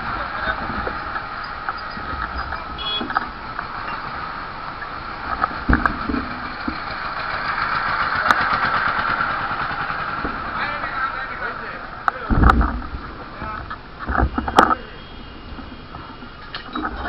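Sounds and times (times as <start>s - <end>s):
vehicle and road noise: 0.0s - 17.0s
low thump: 12.3s - 13.1s.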